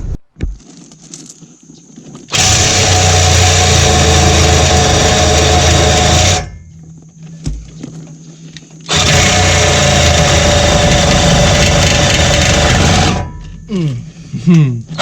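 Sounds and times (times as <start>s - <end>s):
reciprocating saw cutting metal: 2.3s - 6.6s, 8.9s - 13.4s.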